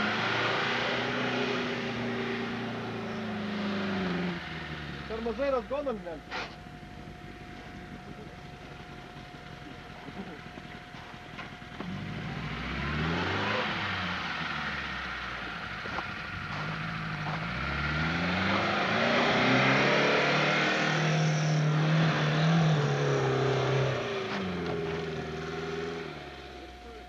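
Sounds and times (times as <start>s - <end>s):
car engine revving hard: 0.0s - 5.5s, 11.8s - 26.7s.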